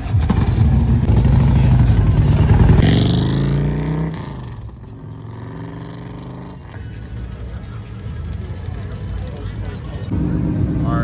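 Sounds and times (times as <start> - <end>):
car engine revving: 0.0 - 7.1, 10.1 - 11.0.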